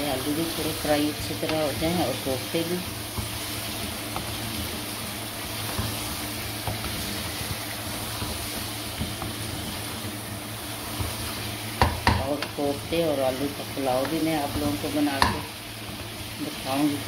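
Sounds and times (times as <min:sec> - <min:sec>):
food sizzling in oil: 0:00.0 - 0:17.0
spatula stirring and scraping: 0:00.2 - 0:17.0.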